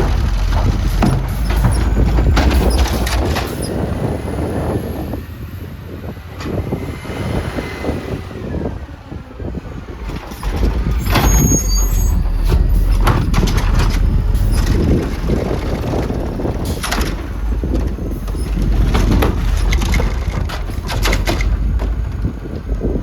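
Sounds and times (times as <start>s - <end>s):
metal clanks: 0.0s - 3.8s, 10.1s - 22.8s
garbage truck engine rumbling: 0.0s - 23.0s
wind buffeting microphone: 0.0s - 23.0s.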